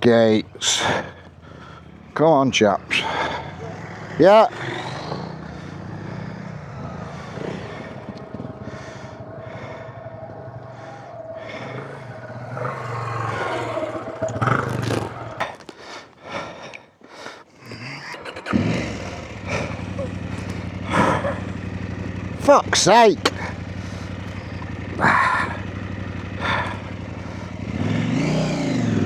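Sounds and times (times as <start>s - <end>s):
motorcycle engine idling: 0.0s - 16.7s, 17.5s - 29.0s
scraping: 2.8s - 16.3s.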